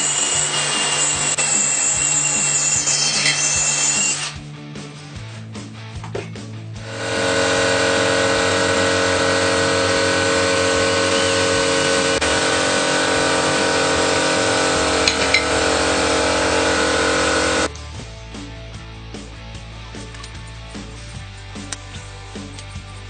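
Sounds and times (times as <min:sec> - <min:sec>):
motor running: 0:06.8 - 0:17.7.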